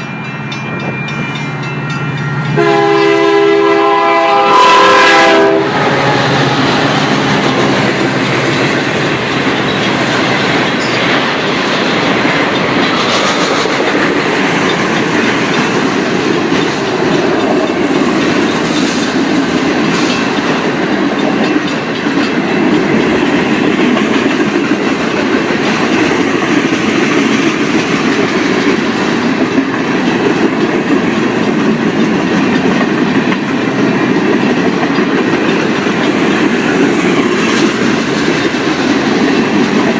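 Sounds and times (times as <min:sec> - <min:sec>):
train wheels rumbling on rails: 0:00.0 - 0:39.9
diesel locomotive horn: 0:02.4 - 0:08.1.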